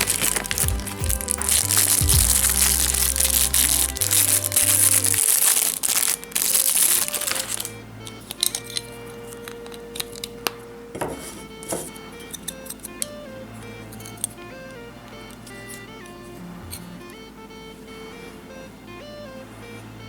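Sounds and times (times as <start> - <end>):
music with stepping bass line: 0.0 - 5.2
plastic packaging crinkling: 0.0 - 13.0.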